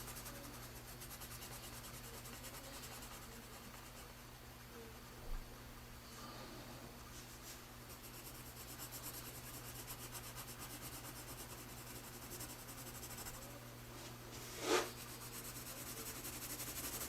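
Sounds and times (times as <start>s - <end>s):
pencil hatching on paper: 0.0s - 4.2s, 7.9s - 13.5s, 14.6s - 17.0s.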